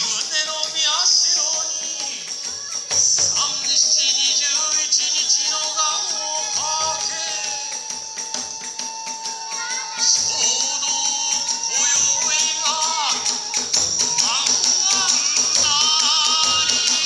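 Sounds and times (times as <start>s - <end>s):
drum strokes: 0.0s - 17.0s
small hand cymbals jangling: 0.0s - 17.0s
bamboo flute long note: 4.6s - 17.0s.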